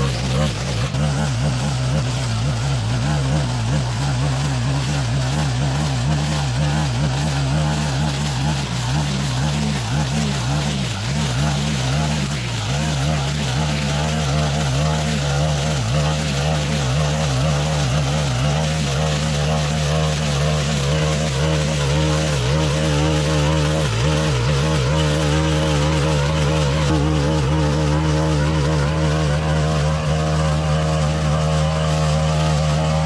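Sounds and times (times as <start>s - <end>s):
brushcutter engine cutting grass: 0.0s - 33.0s.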